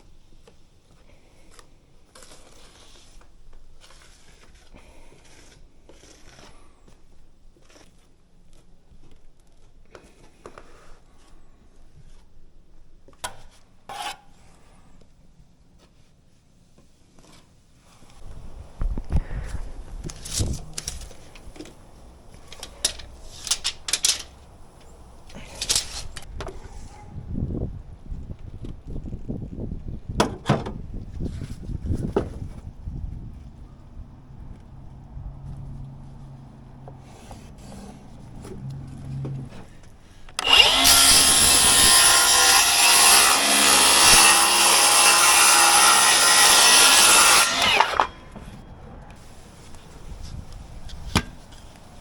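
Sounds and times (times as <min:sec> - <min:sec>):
handling scrapes and clicks: 0:20.0 - 0:27.1
power saw cutting: 0:40.4 - 0:48.4.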